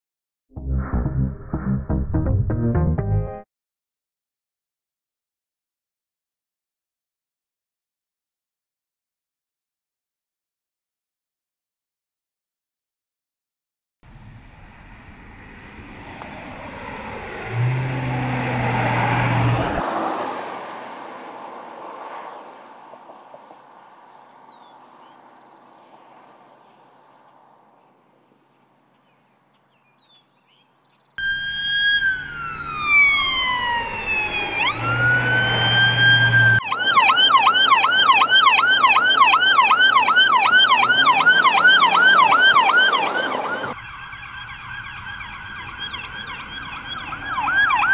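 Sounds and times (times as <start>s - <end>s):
vehicle passing: 14.1s - 29.7s, 31.2s - 47.9s
police siren wailing and yelping: 31.2s - 47.9s.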